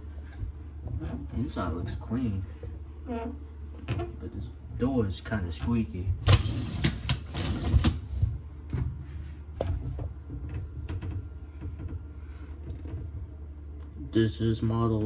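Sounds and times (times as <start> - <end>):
dishwasher door scraping: 6.2 - 8.2.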